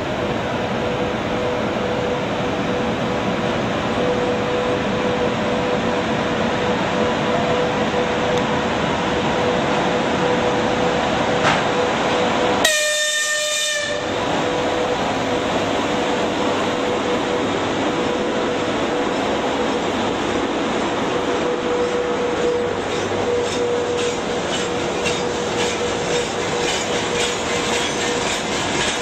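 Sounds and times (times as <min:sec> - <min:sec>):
freight train rumbling past: 0:00.0 - 0:29.0
locomotive hum: 0:00.0 - 0:29.0
train horn: 0:12.6 - 0:14.6.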